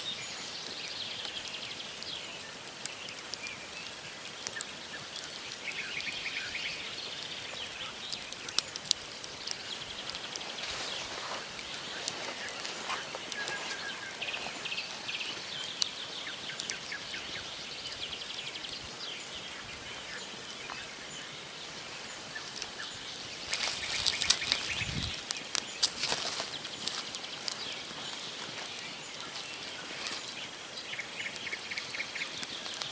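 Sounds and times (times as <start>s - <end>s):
campfire crackling and popping: 0.0s - 32.9s
small birds chirping: 0.0s - 32.9s
rustling: 10.0s - 15.4s, 23.4s - 30.4s.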